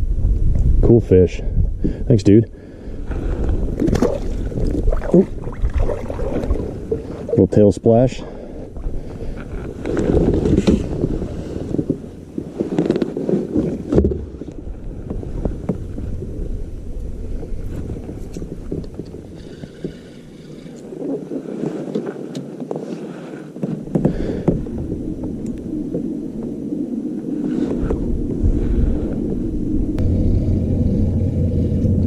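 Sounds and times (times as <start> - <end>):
wind noise: 0.0 - 32.0
low rumble: 2.7 - 7.6, 24.6 - 32.0
water noise: 2.8 - 32.0
knocks and clicks on hull: 18.1 - 20.2, 23.6 - 26.5.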